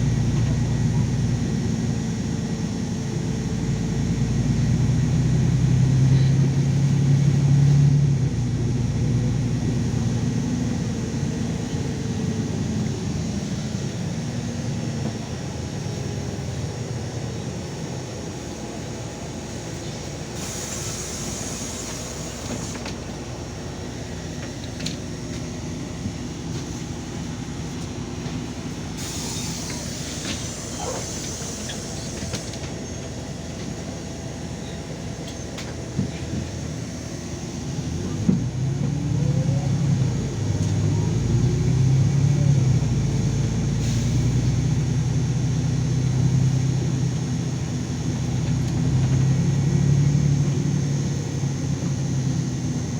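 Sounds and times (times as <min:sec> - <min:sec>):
bus engine from inside: 0:00.0 - 0:52.9
air brake hissing: 0:19.6 - 0:23.2, 0:28.9 - 0:32.8, 0:43.7 - 0:45.0.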